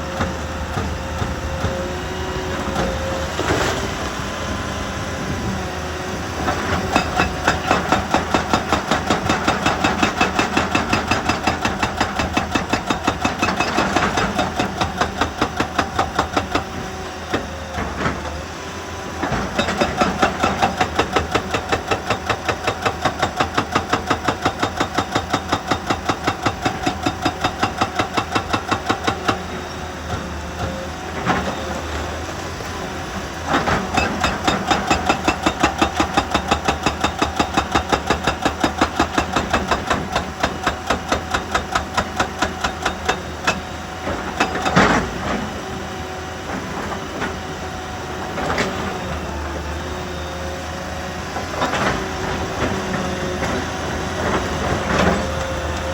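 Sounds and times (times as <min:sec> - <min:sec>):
machinery pounding rock: 0:06.3 - 0:18.4, 0:19.2 - 0:32.0, 0:32.7 - 0:45.5.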